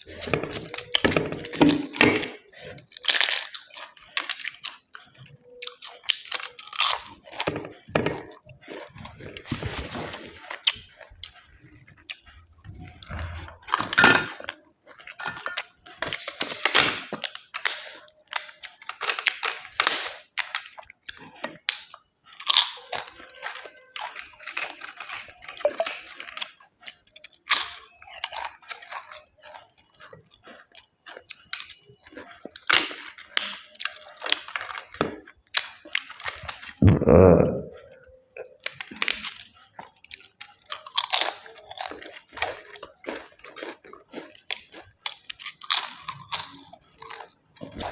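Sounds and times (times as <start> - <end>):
person chewing and crunching: 0.0 - 47.9
deep mouth sound: 36.8 - 38.0.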